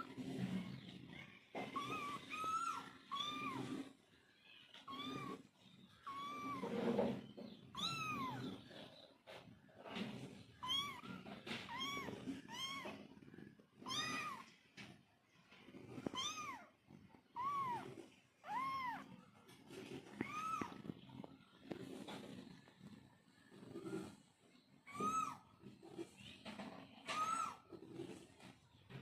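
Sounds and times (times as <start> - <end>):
cats meowing: 0.0 - 4.0, 4.7 - 8.9, 10.2 - 14.6, 15.7 - 22.0, 23.5 - 26.0, 27.0 - 28.1.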